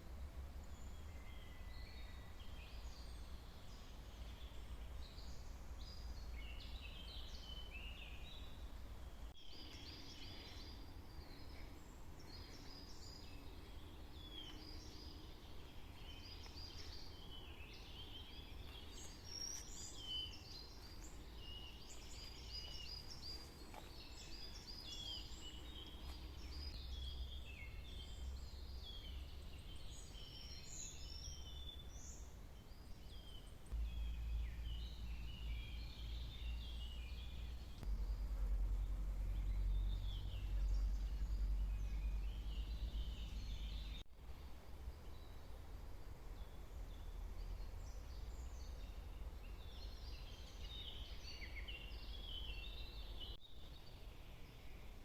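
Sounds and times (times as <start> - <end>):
low steady rumble: 0.0 - 55.0
songbirds chirping and trilling: 0.0 - 55.0.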